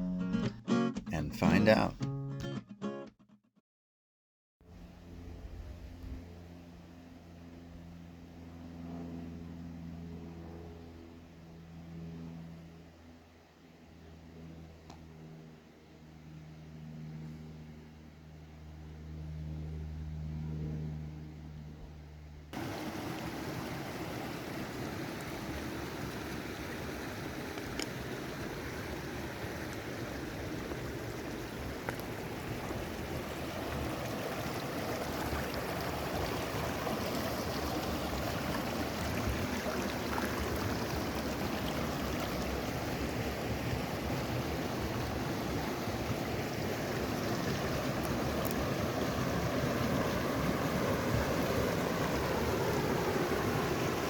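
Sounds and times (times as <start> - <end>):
river water rushing: 22.6 - 54.0.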